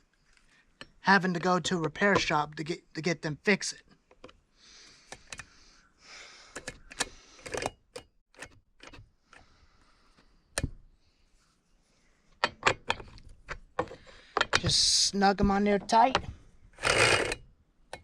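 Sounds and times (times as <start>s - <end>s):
metallic clicks and knocks: 12.4s - 14.9s.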